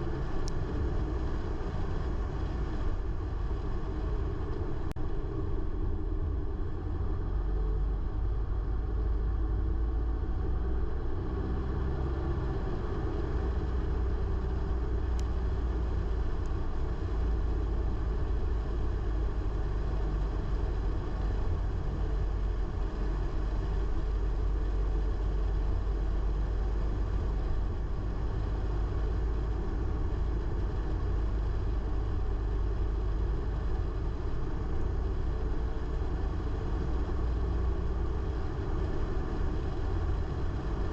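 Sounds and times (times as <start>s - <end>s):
car engine rumble: 0.0s - 40.9s
road noise: 0.0s - 40.9s.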